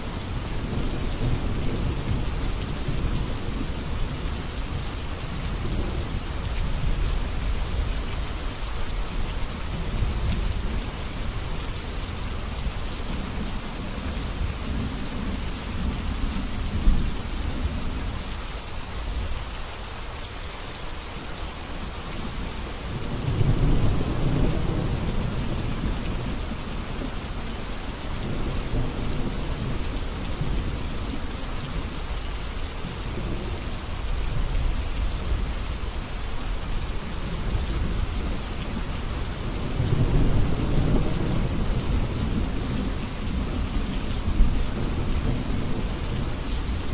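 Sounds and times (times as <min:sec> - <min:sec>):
steady rain falling: 0:00.0 - 0:46.9
thunder rumbling: 0:37.3 - 0:46.9.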